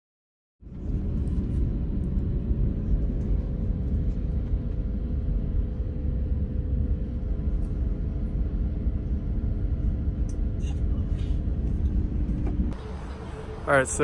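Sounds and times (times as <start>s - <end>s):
faint even hum: 0.7s - 14.0s
vehicle rumble: 7.0s - 14.0s.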